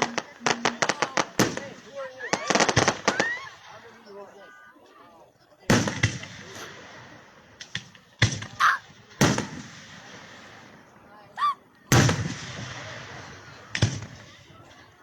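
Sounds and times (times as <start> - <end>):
firework booms: 11.9 - 14.3.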